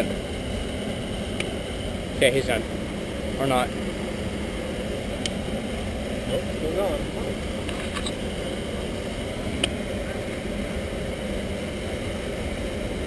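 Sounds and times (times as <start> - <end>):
steady rushing background noise: 0.0 - 13.0.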